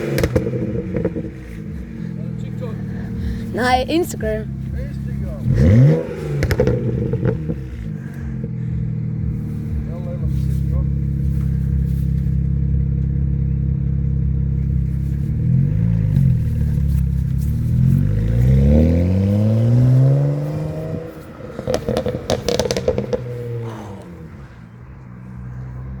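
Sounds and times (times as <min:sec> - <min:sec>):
exhaust pops and crackles: 0:00.0 - 0:25.0
car engine revving: 0:00.0 - 0:26.0.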